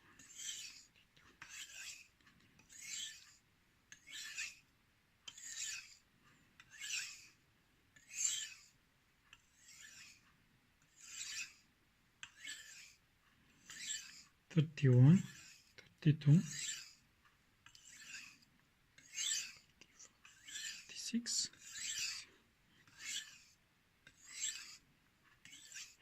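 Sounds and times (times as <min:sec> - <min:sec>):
knife scraping on whetstone: 0:00.2 - 0:04.6, 0:05.3 - 0:06.0, 0:06.6 - 0:07.4, 0:08.0 - 0:08.8, 0:09.4 - 0:10.3, 0:10.9 - 0:11.6, 0:12.2 - 0:13.0, 0:13.6 - 0:14.4, 0:15.2 - 0:15.8, 0:16.4 - 0:17.0, 0:17.7 - 0:26.0.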